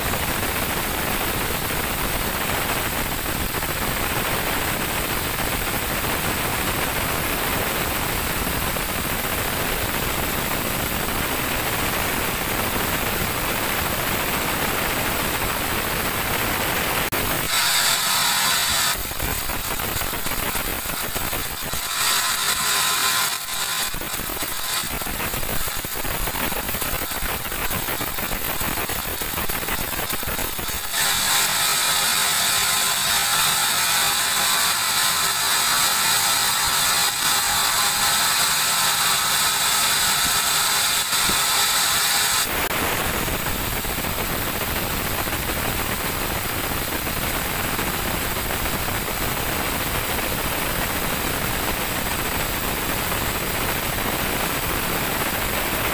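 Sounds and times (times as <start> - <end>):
high-pitched whine: 15.1 - 29.4, 30.2 - 43.9
band saw cutting log: 17.1 - 42.7.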